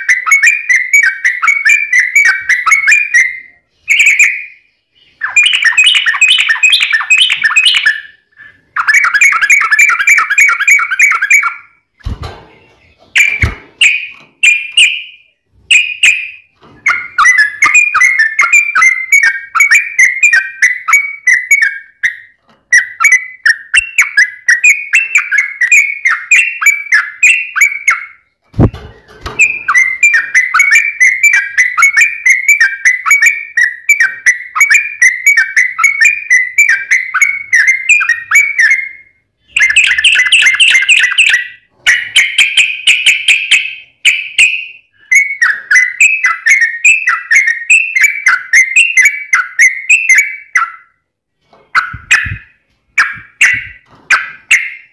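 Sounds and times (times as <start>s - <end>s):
bulbul chattering song: 51.8s - 54.9s.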